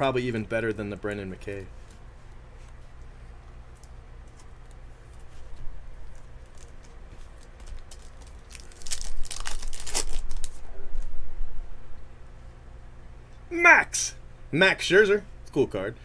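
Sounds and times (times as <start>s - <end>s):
steady low hum: 0.0s - 16.0s
foil wrapper crinkling and tearing: 6.1s - 10.7s.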